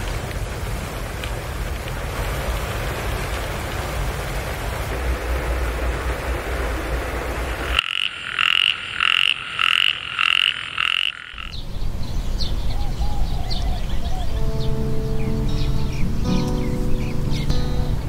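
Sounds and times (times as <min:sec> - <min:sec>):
steady rain: 0:00.0 - 0:18.0
frog croaking: 0:07.4 - 0:11.6.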